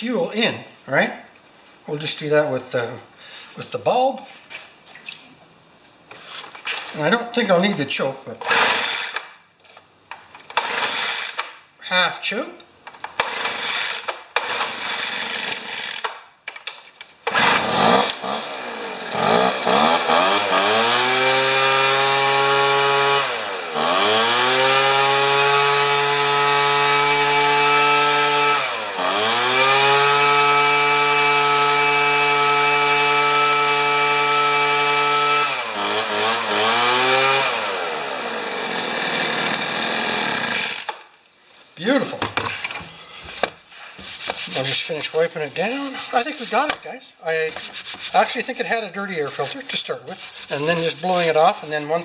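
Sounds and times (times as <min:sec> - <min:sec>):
leaf blower engine revving: 0:08.4 - 0:09.3, 0:10.6 - 0:11.4, 0:13.2 - 0:16.1, 0:17.2 - 0:41.0
pull-starter cord: 0:10.5 - 0:11.5, 0:13.1 - 0:16.7.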